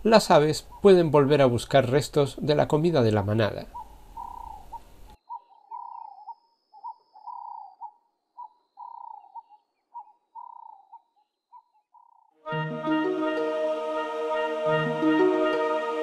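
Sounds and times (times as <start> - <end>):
bird whistling calls: 3.8 - 12.2.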